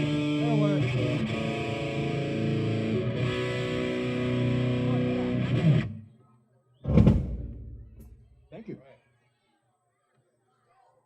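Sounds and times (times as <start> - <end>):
distorted electric guitar: 0.0 - 6.0
loud low thump: 6.8 - 8.3.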